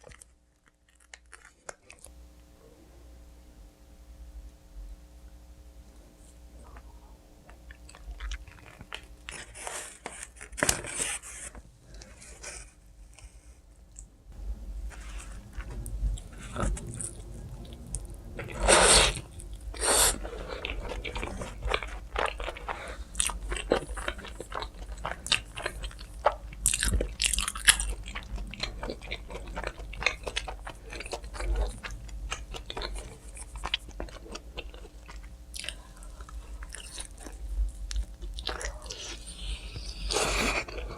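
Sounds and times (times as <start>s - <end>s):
pizza crunching bites: 0.0s - 2.1s, 19.2s - 40.9s.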